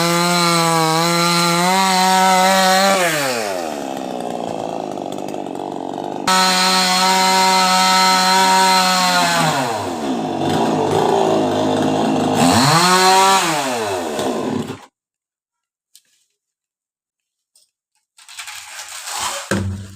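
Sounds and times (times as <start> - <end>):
chainsaw revving: 0.0 - 14.9.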